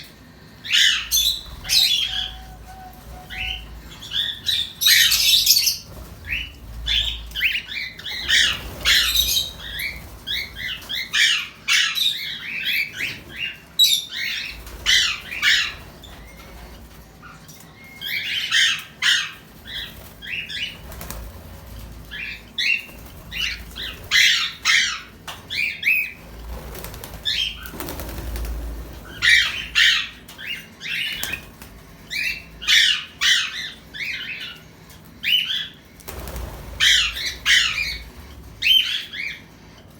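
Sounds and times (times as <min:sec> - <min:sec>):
pet birds chirping: 0:00.0 - 0:39.9
wings flapping: 0:01.0 - 0:11.6, 0:14.3 - 0:17.0, 0:19.4 - 0:33.2, 0:36.0 - 0:39.3.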